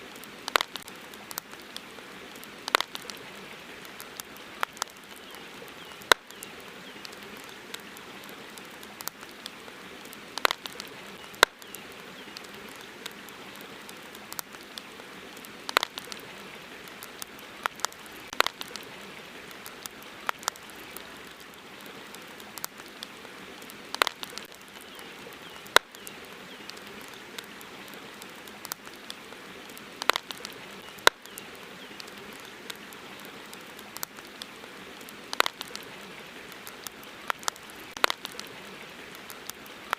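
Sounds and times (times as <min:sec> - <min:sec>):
campfire wood crackling: 0:00.0 - 0:39.9
flowing river water: 0:00.0 - 0:39.9.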